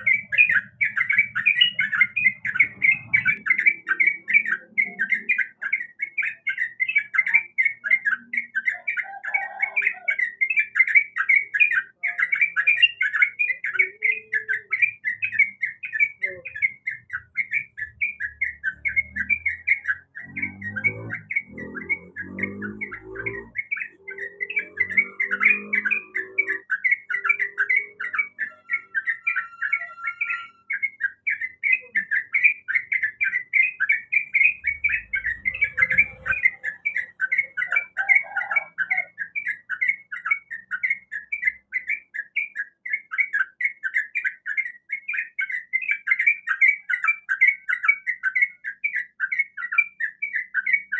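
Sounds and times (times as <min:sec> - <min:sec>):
bulbul chirping: 0:00.0 - 0:50.9.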